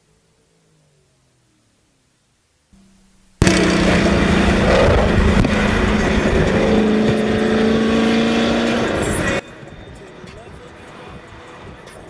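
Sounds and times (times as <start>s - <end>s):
car engine revving: 2.8s - 9.4s.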